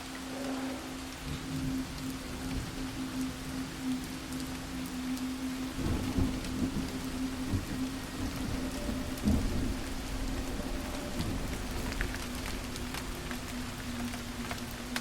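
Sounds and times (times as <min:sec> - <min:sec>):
rain falling: 0:00.0 - 0:15.0
thunder rumble: 0:05.6 - 0:14.6.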